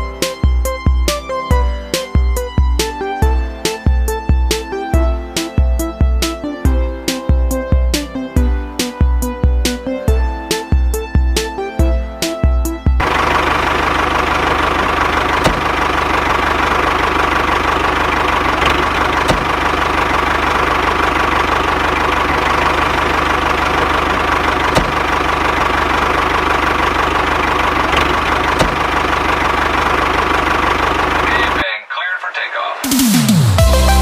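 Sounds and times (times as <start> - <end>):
small motor running: 13.0 - 31.6.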